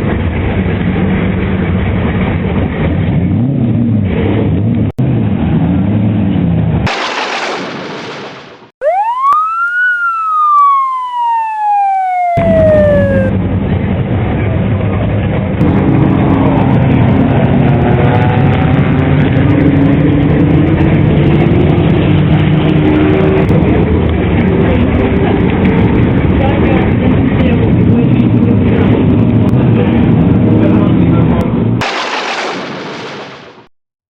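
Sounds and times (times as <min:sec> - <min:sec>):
vehicle rumble with wavering hum: 0:00.0 - 0:06.8, 0:12.4 - 0:31.8
police siren whoop: 0:08.8 - 0:13.4.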